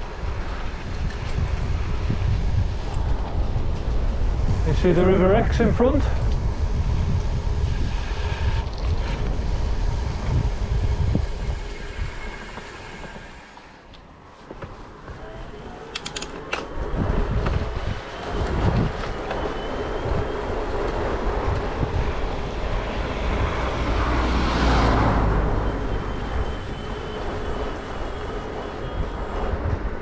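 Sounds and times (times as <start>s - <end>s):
bicycle tyre noise on road: 0.0s - 30.0s
wind rumbling on microphone: 0.0s - 30.0s
sharp clicks: 15.9s - 16.7s.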